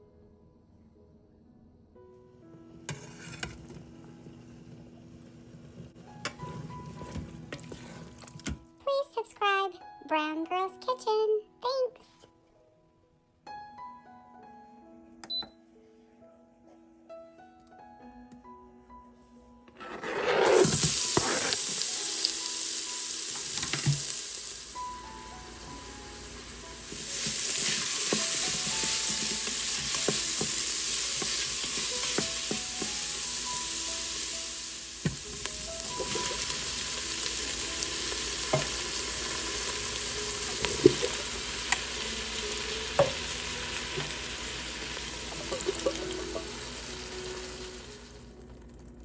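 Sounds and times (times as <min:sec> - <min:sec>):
onions sizzling in hot oil: 0:20.5 - 0:48.2.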